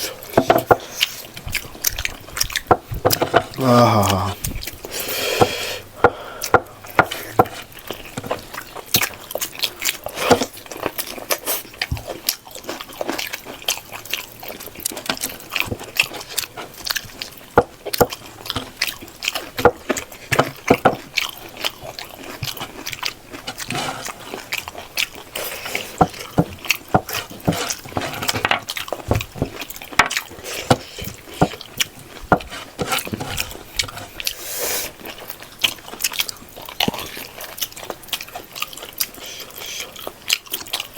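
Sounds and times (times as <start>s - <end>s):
person chewing and smacking: 0.0s - 40.9s.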